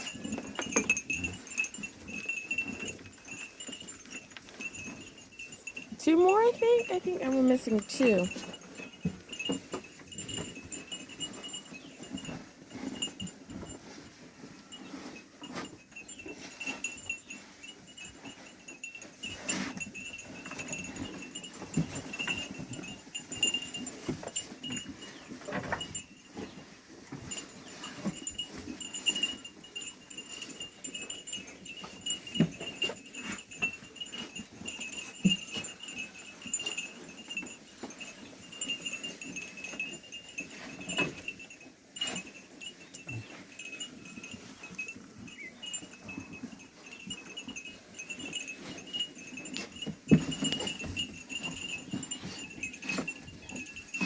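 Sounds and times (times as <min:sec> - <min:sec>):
sheep bells clinking: 0:00.0 - 0:54.0.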